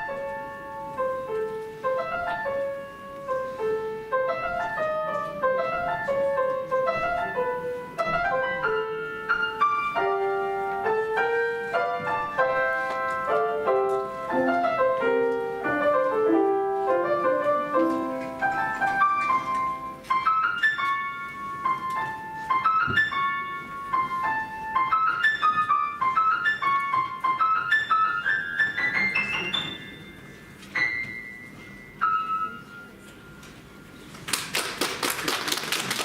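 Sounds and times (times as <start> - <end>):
solo piano melody: 0.0 - 34.1
audience applause: 34.3 - 36.0.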